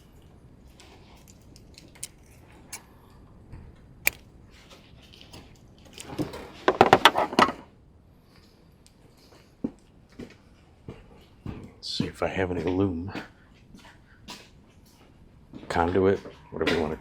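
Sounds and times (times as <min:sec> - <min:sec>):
sharp clicks: 0:04.1 - 0:04.3.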